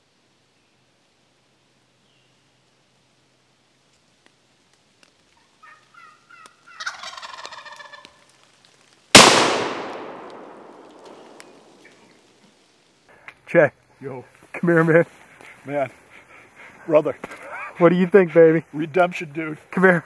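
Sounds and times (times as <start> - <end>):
turkey gobbling: 5.6 - 8.3
shotgun shot with long echo: 9.2 - 11.8.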